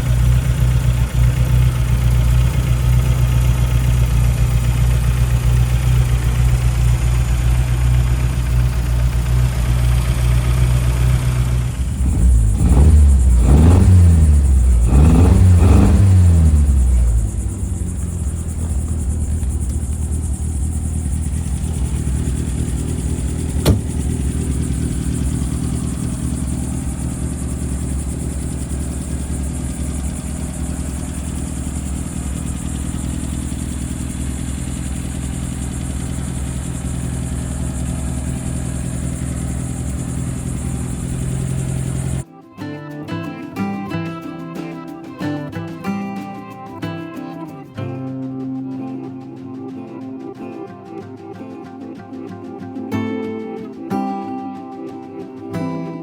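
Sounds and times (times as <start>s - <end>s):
car engine revving and idling: 0.0s - 42.3s
sharp click: 23.4s - 24.5s.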